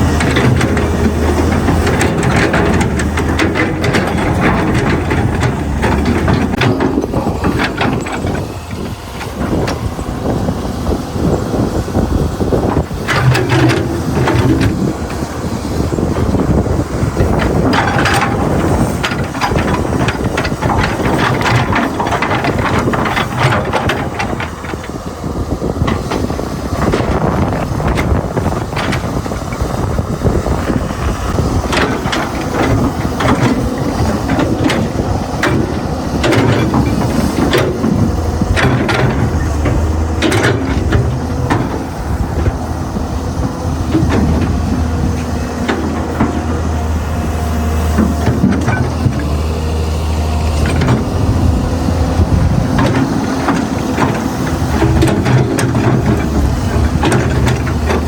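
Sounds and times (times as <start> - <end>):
excavator engine running: 0.0 - 58.0.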